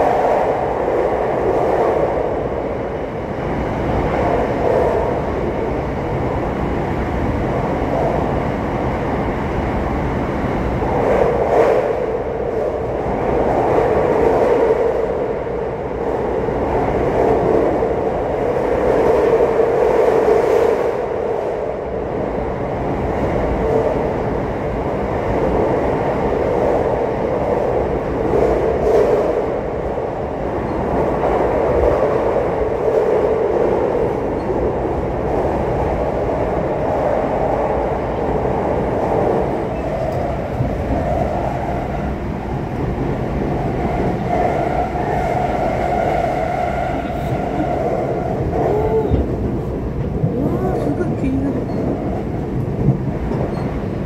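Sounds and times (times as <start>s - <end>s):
train wheels on rail: 0.0s - 54.0s.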